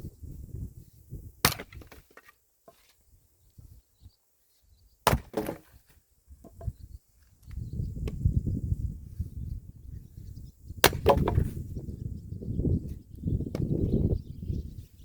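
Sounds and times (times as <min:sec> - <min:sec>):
axe splitting firewood: 0:01.4 - 0:02.9, 0:05.0 - 0:05.8, 0:10.8 - 0:11.6.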